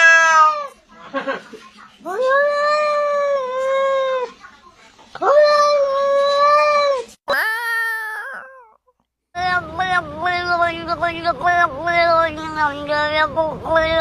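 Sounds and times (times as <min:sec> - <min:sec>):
cat yowling: 0:00.0 - 0:00.7.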